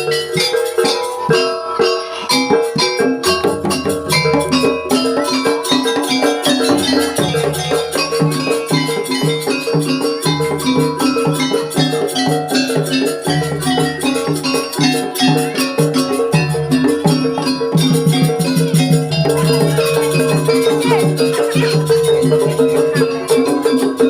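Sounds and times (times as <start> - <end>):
fast percussion music: 0.0 - 24.0
held bass: 3.2 - 5.4.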